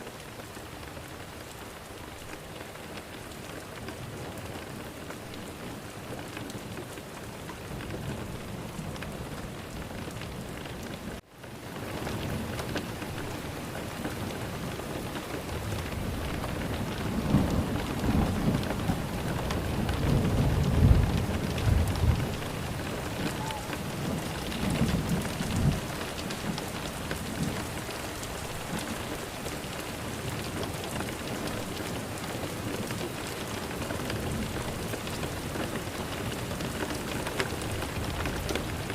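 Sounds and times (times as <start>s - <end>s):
steady rainfall: 0.0s - 38.9s
rolling thunder: 15.5s - 26.6s.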